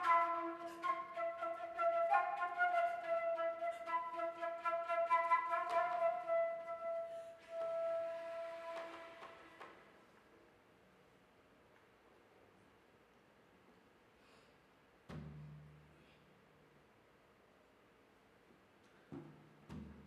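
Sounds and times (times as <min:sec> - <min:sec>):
flute long held notes: 0:00.0 - 0:09.9.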